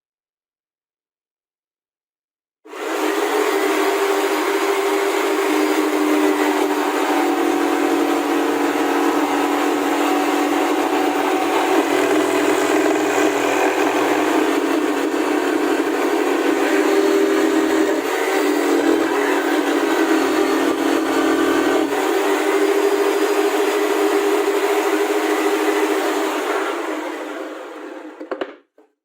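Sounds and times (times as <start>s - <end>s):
power tool motor whining: 6.6s - 22.8s.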